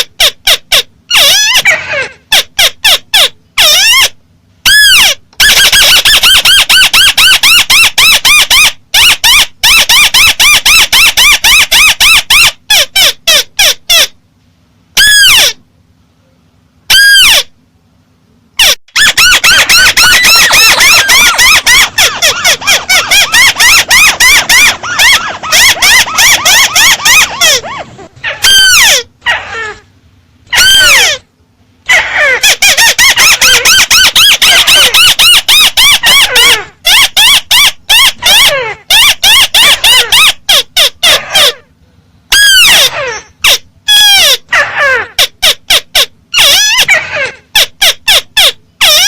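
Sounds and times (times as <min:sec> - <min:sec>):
bird chattering high notes: 0:18.6 - 0:29.8, 0:31.9 - 0:41.6
drawn-out bird calls: 0:18.6 - 0:29.8.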